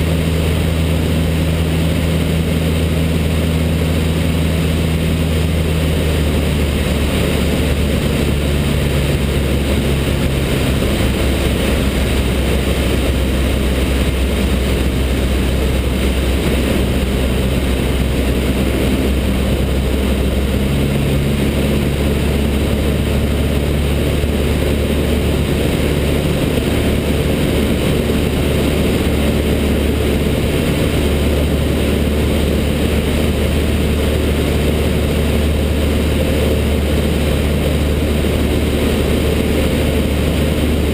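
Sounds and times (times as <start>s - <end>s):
light aircraft engine droning: 0.0s - 40.9s
rushing air: 0.0s - 40.9s.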